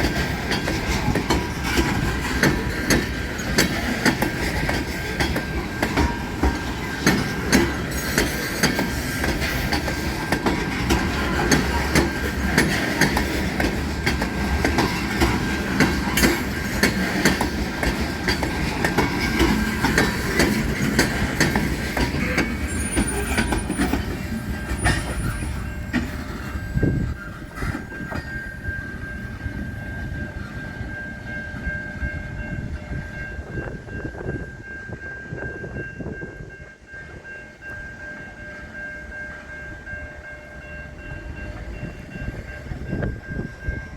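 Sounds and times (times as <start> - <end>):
train wheels clattering over rail joints: 0.0 - 28.5.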